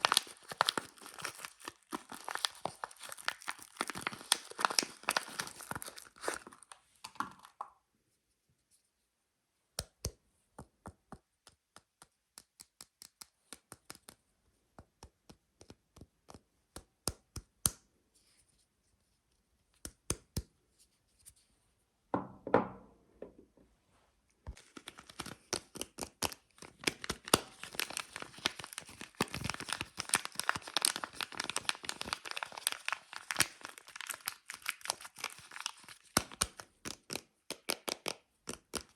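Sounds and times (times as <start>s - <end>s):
soap wrapper crinkling and tearing: 0.0s - 7.6s, 24.5s - 38.9s.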